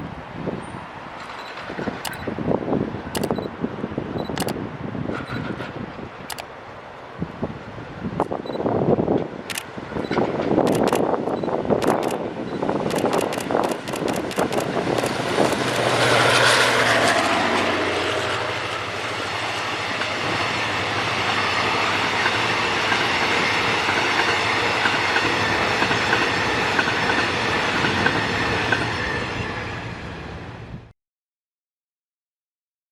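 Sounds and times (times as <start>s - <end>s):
train coaches rolling past: 0.0s - 30.9s
train wheels clicking over rail joints: 5.1s - 6.4s, 9.4s - 12.2s, 12.8s - 17.4s, 19.4s - 29.0s.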